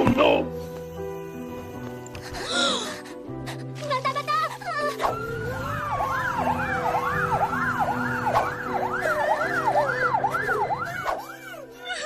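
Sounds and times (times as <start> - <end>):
siren yelping: 5.0 - 11.4.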